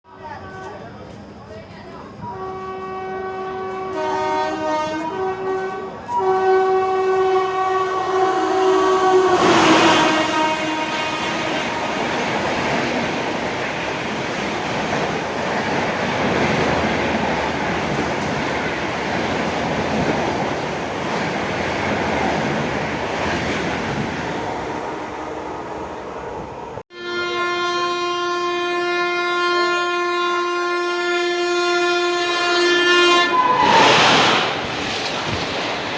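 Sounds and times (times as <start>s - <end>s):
train coaches rushing and clattering: 0.1s - 26.8s, 32.1s - 35.9s
train horn: 2.2s - 13.0s, 26.9s - 34.5s
train horn steady chord: 2.3s - 12.4s, 26.9s - 33.6s.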